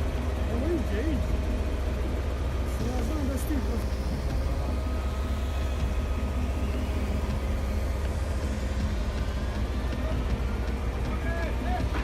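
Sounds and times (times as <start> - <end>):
constant background hiss: 0.0 - 12.0
heavy engine rumbling: 0.0 - 12.0.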